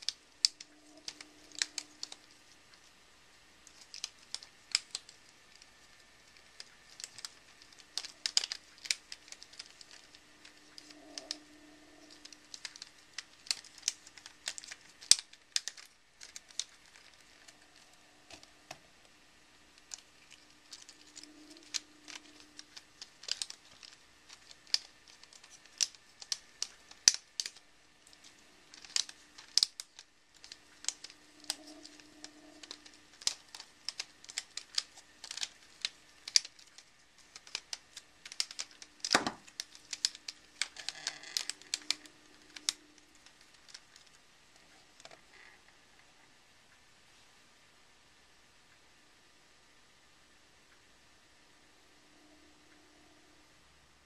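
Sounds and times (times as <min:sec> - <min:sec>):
plastic puzzle segments clicking: 0:00.0 - 0:02.8, 0:03.6 - 0:18.8, 0:19.7 - 0:44.2.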